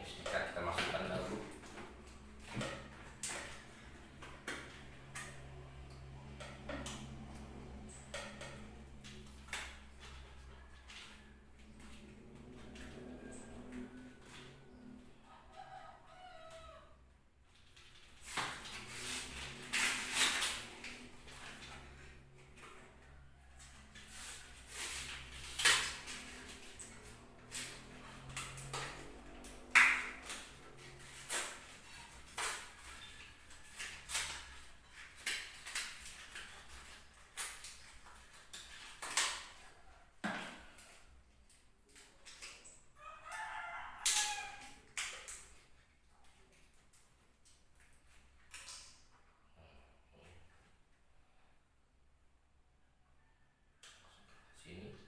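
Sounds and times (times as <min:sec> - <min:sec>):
clicks and rustles of packaging: 0:17.5 - 0:49.1.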